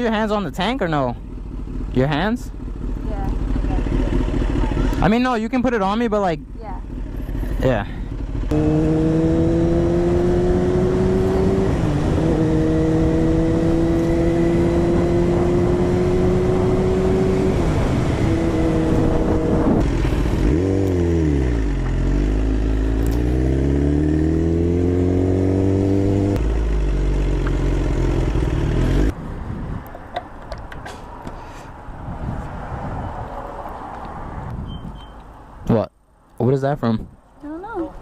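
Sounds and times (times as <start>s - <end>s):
motorcycle engine accelerating: 0.0s - 29.2s.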